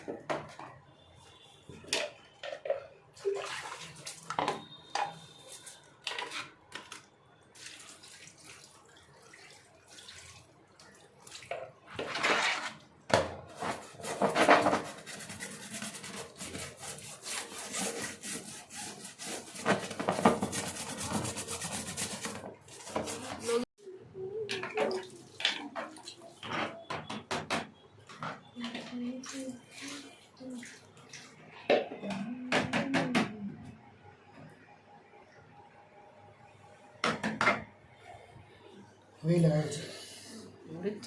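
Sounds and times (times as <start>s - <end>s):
water splashing: 3.1s - 4.8s, 7.5s - 12.0s
scrubbing: 13.5s - 23.7s.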